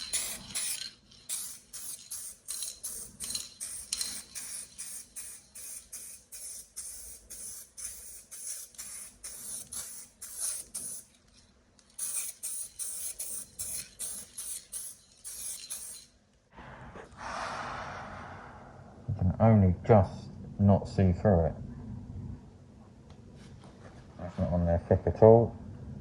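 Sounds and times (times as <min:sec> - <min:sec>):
spray paint bursts: 0:00.0 - 0:11.1, 0:12.0 - 0:16.1.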